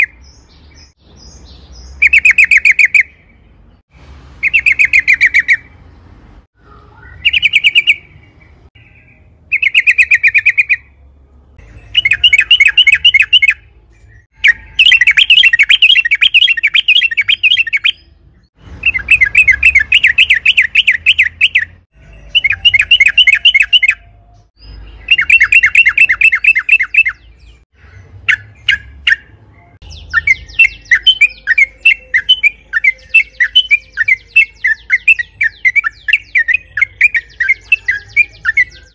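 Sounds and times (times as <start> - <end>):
bulbul singing chattering notes: 11.6 - 18.2, 18.8 - 38.9.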